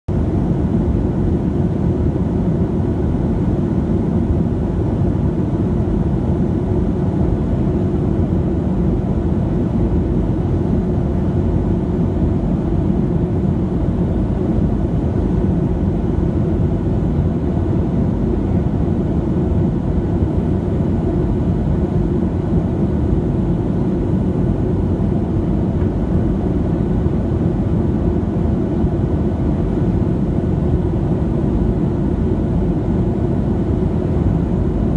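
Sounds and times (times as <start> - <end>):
jet engine cabin rush: 10.5 - 34.9.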